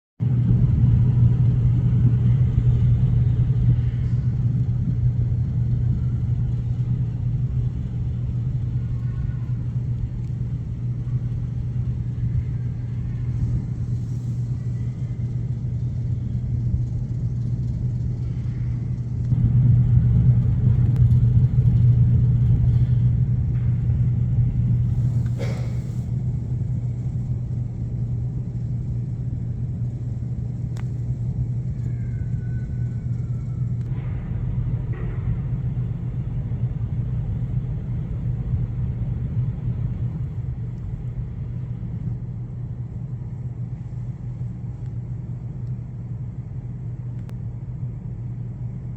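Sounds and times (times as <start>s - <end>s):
road vehicle rumbling: 16.5s - 44.7s.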